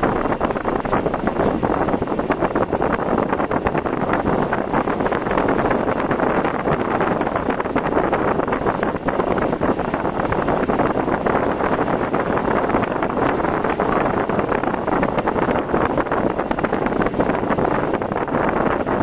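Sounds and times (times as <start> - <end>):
car driving through wind and rain: 0.0 - 19.0.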